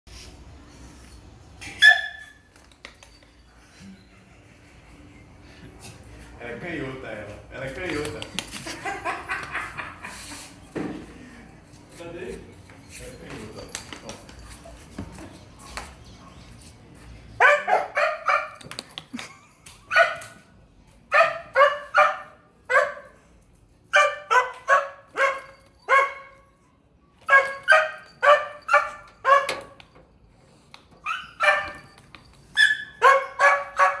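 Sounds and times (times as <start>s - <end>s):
dog barking: 1.8s - 2.2s, 17.4s - 18.6s, 21.1s - 23.2s, 23.9s - 26.4s, 27.3s - 29.8s, 31.1s - 31.8s, 32.6s - 34.0s.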